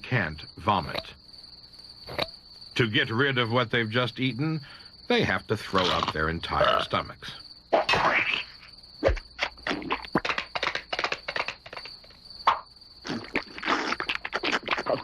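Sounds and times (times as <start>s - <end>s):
high insect trill: 0.0s - 15.0s.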